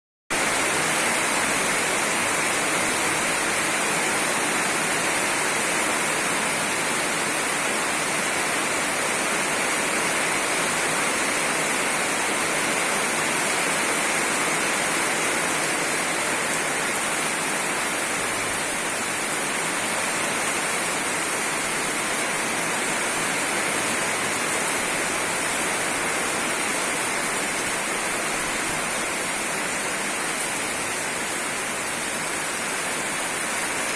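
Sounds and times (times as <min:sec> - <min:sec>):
heavy rain hissing: 0:00.4 - 0:33.9.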